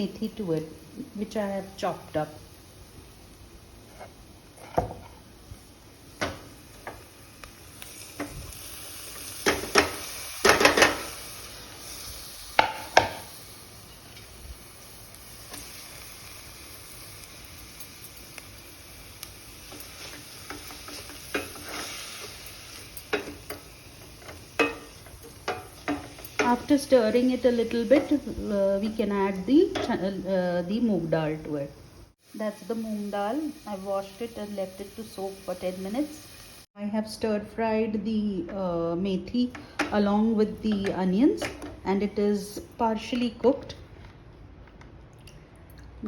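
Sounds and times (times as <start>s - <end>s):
soft sizzle: 0.0s - 46.0s
utensil scraping and knocking pot: 19.7s - 22.4s, 23.0s - 26.7s.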